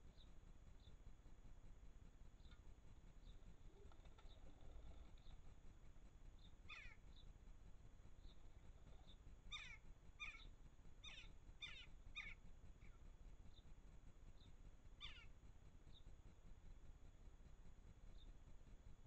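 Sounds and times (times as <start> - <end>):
faint high bird peeps: 6.4 - 7.0, 9.0 - 13.0, 15.0 - 15.3
short falling bird calls: 6.6 - 7.2, 9.0 - 12.4, 15.0 - 15.3.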